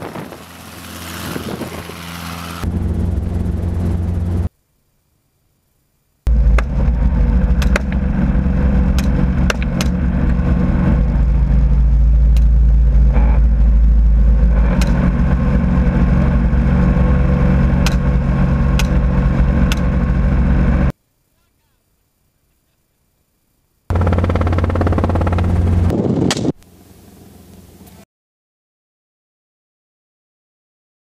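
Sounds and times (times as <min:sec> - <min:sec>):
helicopter engine and rotor drone: 0:00.0 - 0:04.5, 0:06.3 - 0:20.9, 0:23.9 - 0:26.3
sharp clicks: 0:18.8 - 0:19.0.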